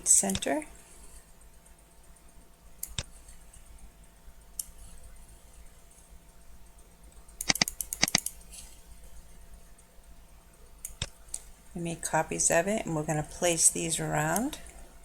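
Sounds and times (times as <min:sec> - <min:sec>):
computer mouse button clicking: 0:07.4 - 0:08.3.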